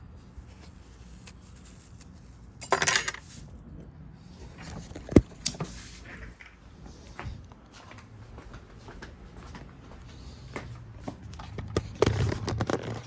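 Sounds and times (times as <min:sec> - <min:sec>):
metal tools clinking: 0:02.6 - 0:03.4.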